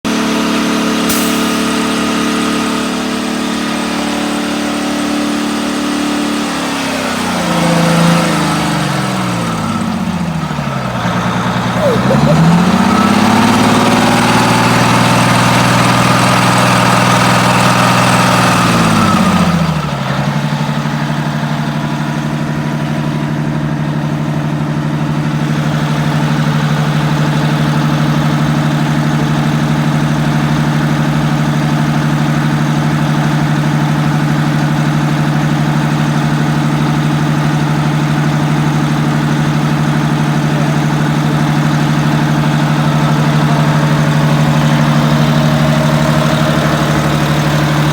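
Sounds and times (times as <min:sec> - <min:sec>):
bus diesel engine: 0:00.1 - 0:47.9.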